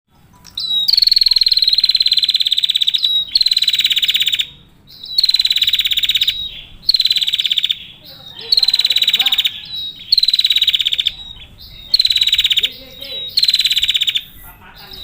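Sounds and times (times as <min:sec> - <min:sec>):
bird calling in rapid trills: 0:00.1 - 0:15.0.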